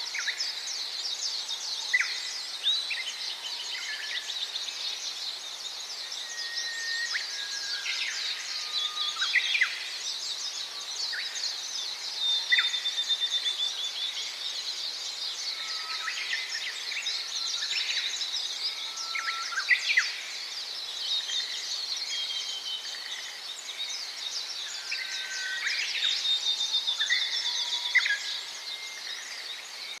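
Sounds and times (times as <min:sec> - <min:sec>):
whistled bird notes: 0:06.1 - 0:09.8.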